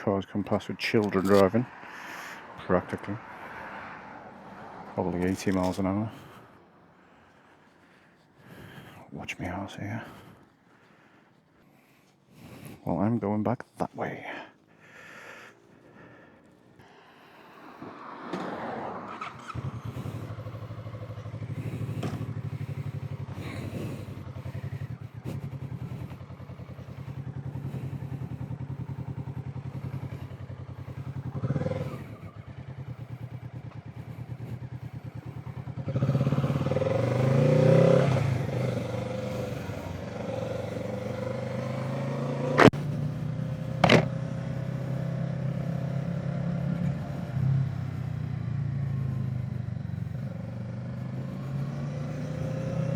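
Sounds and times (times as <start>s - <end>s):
motorcycle engine revving: 0.3s - 6.6s, 17.8s - 52.9s.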